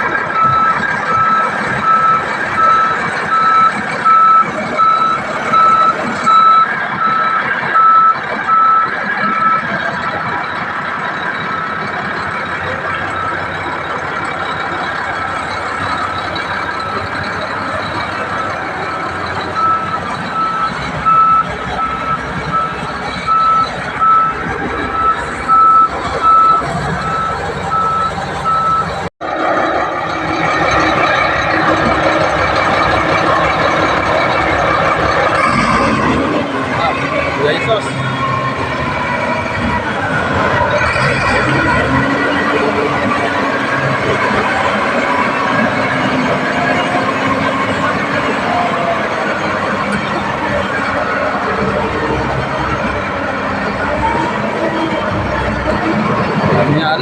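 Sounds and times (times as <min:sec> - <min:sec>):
diesel engine running: 0:00.0 - 0:57.0
reverse alarm beeping: 0:00.3 - 0:09.8, 0:15.5 - 0:29.0.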